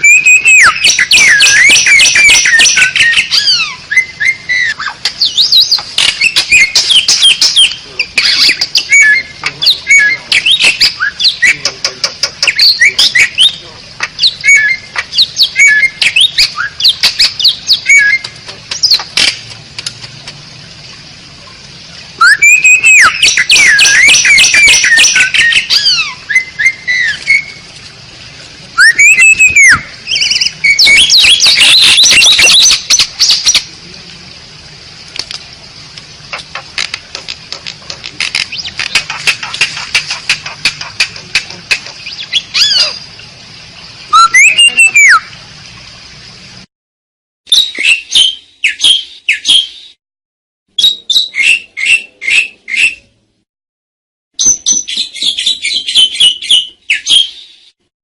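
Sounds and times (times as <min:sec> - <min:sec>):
starling whistling song: 0:00.0 - 0:19.1, 0:22.2 - 0:27.6, 0:28.8 - 0:33.7, 0:38.3 - 0:43.1, 0:44.1 - 0:45.3, 0:47.5 - 0:50.0, 0:50.8 - 0:53.1, 0:54.4 - 0:57.8
bird chattering and squawking: 0:00.0 - 0:19.5, 0:22.2 - 0:27.5, 0:28.8 - 0:33.7, 0:36.2 - 0:43.1, 0:44.1 - 0:45.2
bird fast clicking notes: 0:00.9 - 0:03.2, 0:18.0 - 0:20.4, 0:36.3 - 0:42.4.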